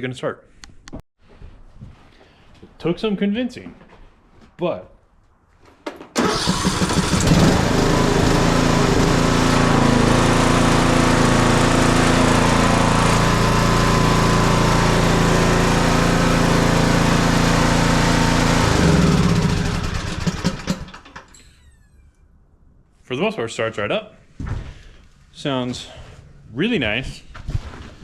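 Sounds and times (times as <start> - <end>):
lawn tractor engine running: 6.2 - 21.4.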